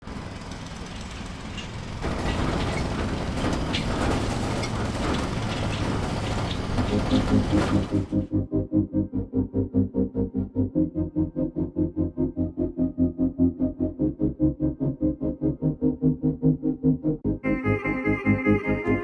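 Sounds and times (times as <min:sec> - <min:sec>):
clatter and clicks: 0:00.0 - 0:08.3
machinery rumble: 0:00.0 - 0:08.4.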